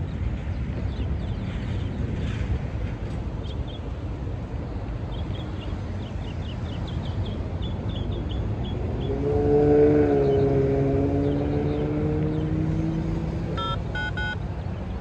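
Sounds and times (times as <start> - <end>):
small birds chirping: 5.0 - 9.3, 10.0 - 15.0.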